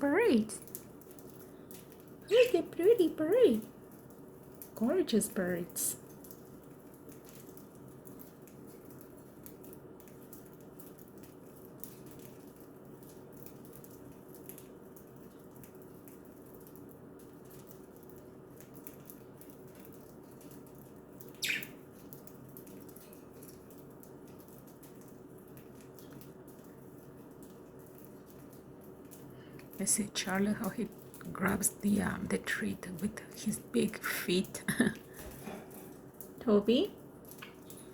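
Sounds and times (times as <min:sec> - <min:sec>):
faint room hum: 0:00.0 - 0:37.9
budgie chirp: 0:21.4 - 0:21.8.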